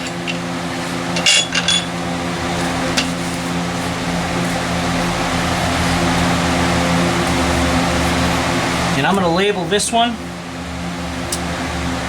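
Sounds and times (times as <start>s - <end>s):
machine hum with hiss: 0.0s - 12.0s.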